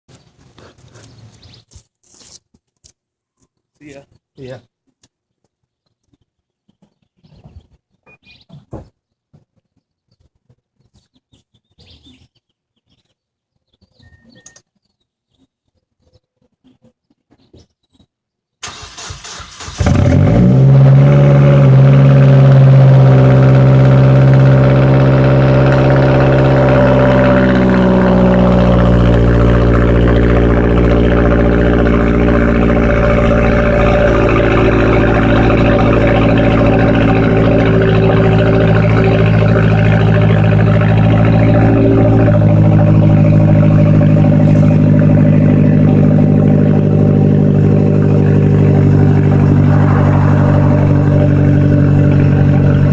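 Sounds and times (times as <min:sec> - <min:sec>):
car engine raspy idle: 0:18.7 - 0:52.9.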